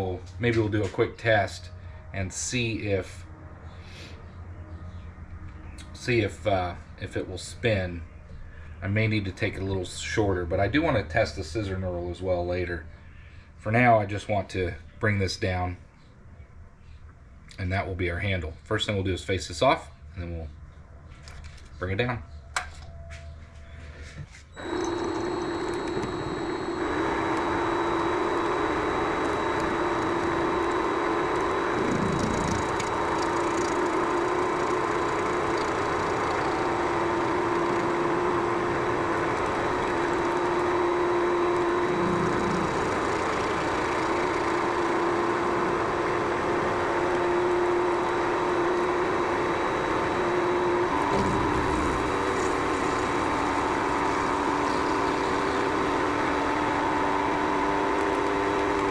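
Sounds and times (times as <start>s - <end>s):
lathe motor whine: 24.5s - 58.9s.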